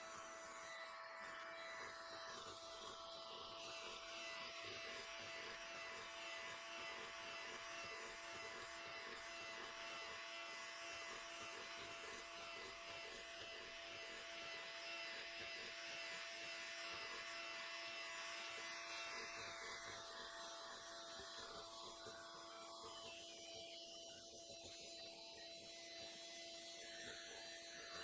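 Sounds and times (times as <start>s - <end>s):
small motor humming: 0.0s - 28.0s.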